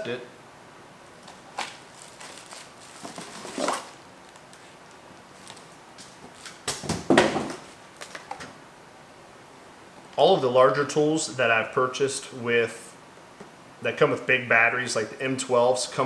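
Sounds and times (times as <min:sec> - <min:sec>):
packaging rustling: 0:01.2 - 0:08.4.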